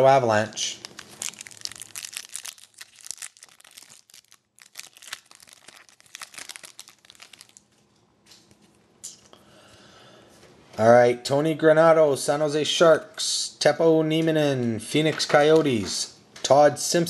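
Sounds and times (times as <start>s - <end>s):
wrapper tearing and crinkling: 0.6s - 7.7s.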